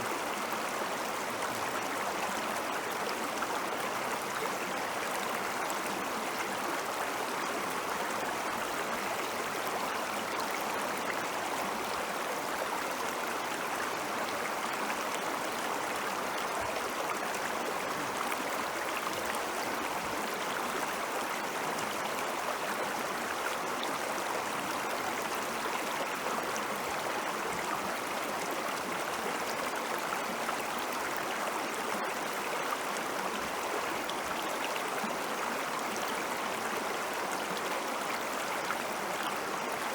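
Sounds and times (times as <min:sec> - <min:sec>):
stream water flowing over rocks: 0:00.0 - 0:39.9.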